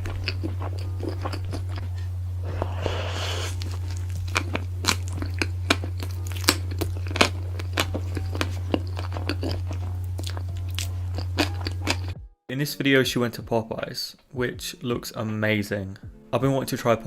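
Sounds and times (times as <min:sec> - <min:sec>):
crunchy bites and chewing: 0:00.0 - 0:12.2
steady low hum: 0:00.0 - 0:12.3.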